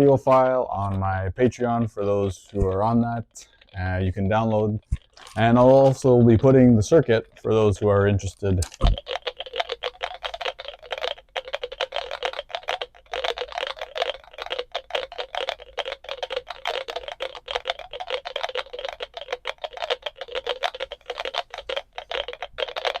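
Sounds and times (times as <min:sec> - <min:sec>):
electronic drip clicks: 0:08.6 - 0:23.0.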